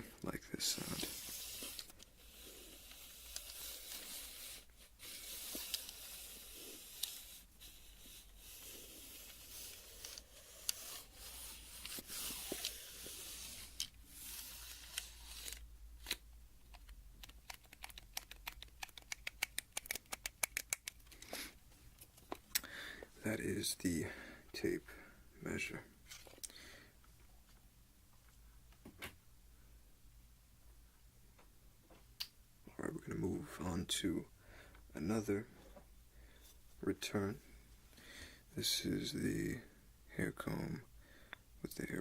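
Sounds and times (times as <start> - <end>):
tape measure scraping: 0.8 - 15.7.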